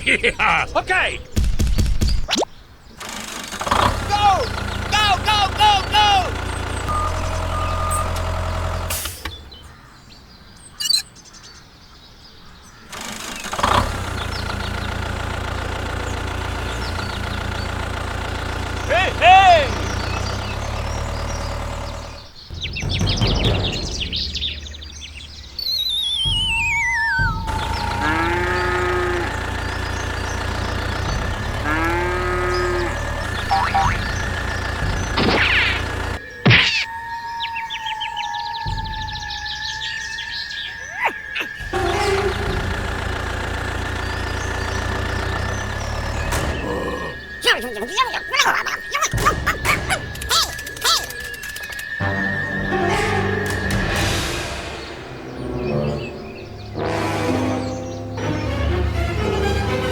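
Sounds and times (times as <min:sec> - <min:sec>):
engine starting up: 0:02.9 - 0:11.1, 0:12.8 - 0:36.8, 0:39.4 - 0:59.9
engine idling: 0:03.0 - 0:10.4, 0:12.8 - 0:36.3, 0:41.5 - 0:59.9
faint bird chirps: 0:04.2 - 0:13.5, 0:15.8 - 0:53.1
cow mooing: 0:27.3 - 0:36.2, 0:41.5 - 0:43.8.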